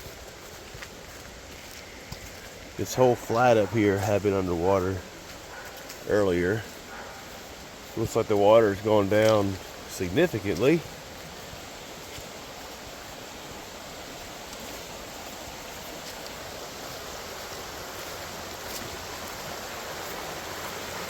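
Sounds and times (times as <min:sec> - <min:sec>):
creek water rushing: 0:00.0 - 0:21.0.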